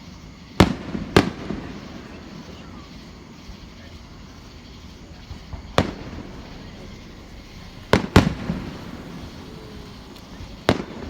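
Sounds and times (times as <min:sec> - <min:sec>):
firework bangs with echo: 0:00.6 - 0:11.0.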